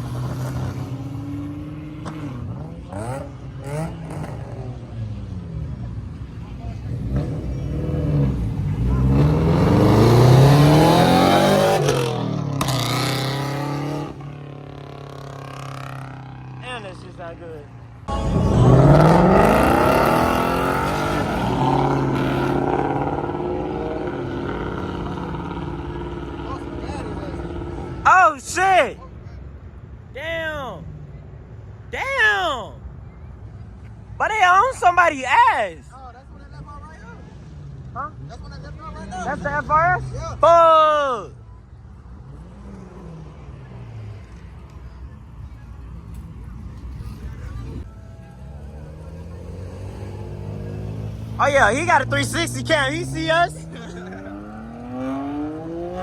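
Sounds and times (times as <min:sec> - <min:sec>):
car engine accelerating hard: 0:06.7 - 0:16.4, 0:18.1 - 0:28.0, 0:48.5 - 0:56.0
engines idling: 0:14.1 - 0:31.4, 0:32.4 - 0:54.8.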